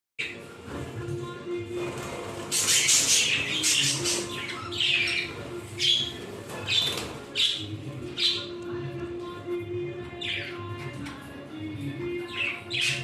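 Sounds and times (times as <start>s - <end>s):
background music: 0.2s - 13.0s
birds squawking: 2.0s - 8.8s, 10.0s - 10.9s, 12.0s - 13.0s.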